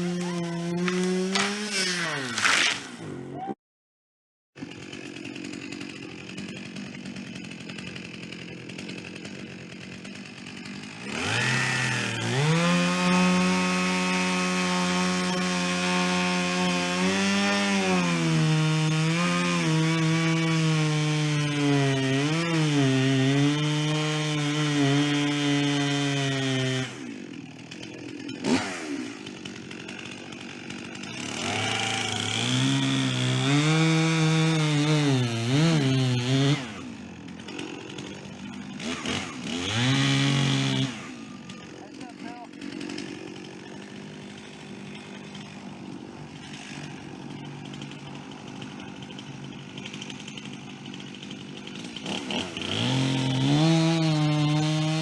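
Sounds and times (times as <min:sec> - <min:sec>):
chainsaw revving and cutting wood: 0:00.0 - 0:03.3, 0:04.6 - 0:55.0.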